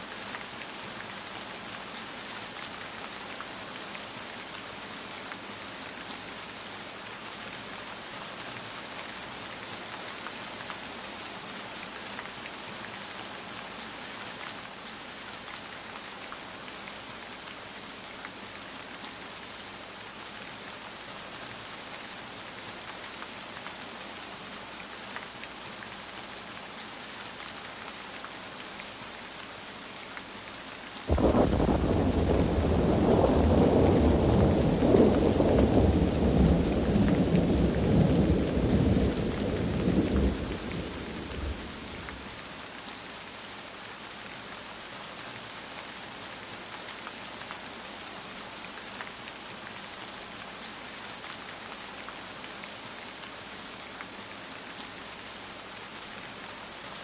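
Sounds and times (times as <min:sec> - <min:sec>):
steady rain falling: 0:00.0 - 0:57.0
thunder rolling: 0:31.1 - 0:42.3.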